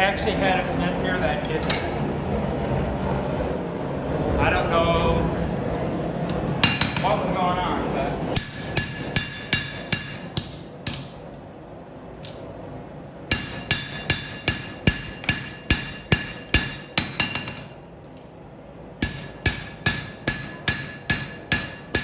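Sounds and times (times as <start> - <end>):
hammer striking steel on anvil: 1.5 - 2.2, 6.6 - 7.1, 8.3 - 11.2, 13.3 - 17.8, 19.0 - 22.0.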